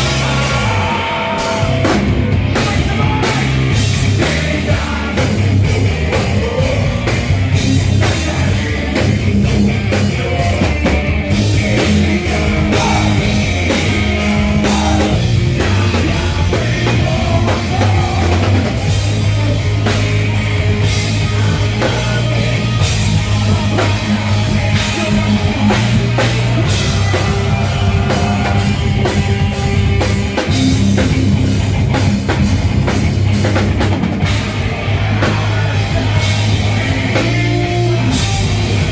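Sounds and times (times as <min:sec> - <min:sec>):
person singing: 0:00.0 - 0:29.5
bass line: 0:00.0 - 0:38.9
live rock band: 0:00.0 - 0:38.9.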